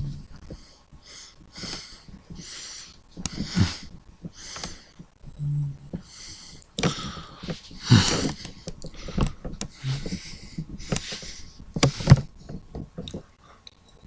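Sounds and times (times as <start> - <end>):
person breathing and sniffing: 0.4 - 5.0, 6.0 - 12.3.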